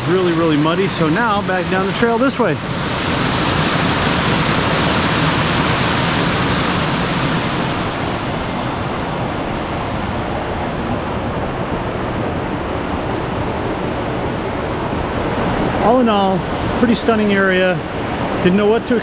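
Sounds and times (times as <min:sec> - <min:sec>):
waterfall roaring: 0:00.0 - 0:12.3.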